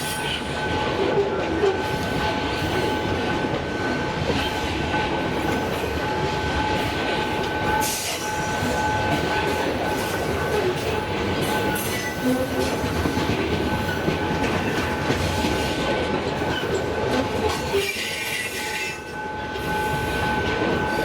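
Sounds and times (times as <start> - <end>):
freight train wheels rumbling: 0.0 - 21.0.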